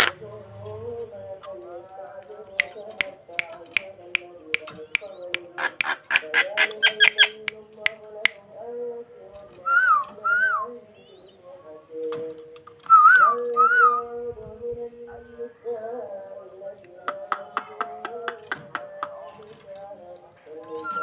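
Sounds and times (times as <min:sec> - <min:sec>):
starling clicking calls: 0:02.2 - 0:08.4, 0:09.5 - 0:11.4, 0:17.1 - 0:21.0
starling whistled notes: 0:09.7 - 0:11.4.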